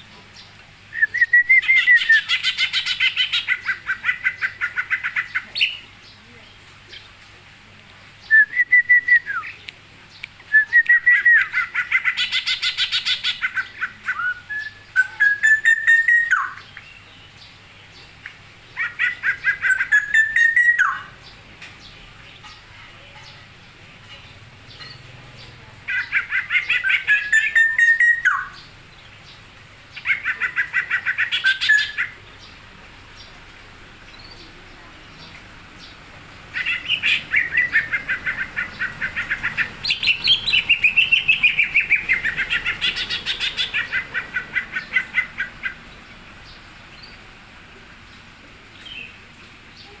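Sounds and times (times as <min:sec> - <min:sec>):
songbird chattering and whistling: 0:00.4 - 0:06.2, 0:08.2 - 0:21.4, 0:25.8 - 0:32.6, 0:34.1 - 0:45.9.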